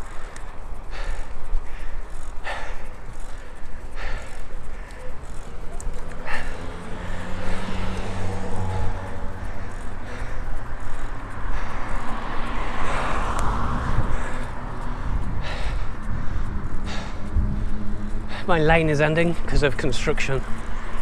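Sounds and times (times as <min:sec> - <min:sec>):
car passing: 0:00.0 - 0:21.0
road traffic: 0:00.0 - 0:21.0
wind on microphone: 0:12.8 - 0:18.3.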